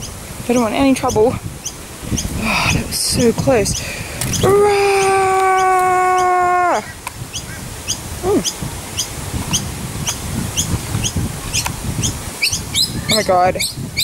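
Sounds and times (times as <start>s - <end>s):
small bird chirping: 0.0s - 2.4s, 3.6s - 4.5s, 7.3s - 14.0s.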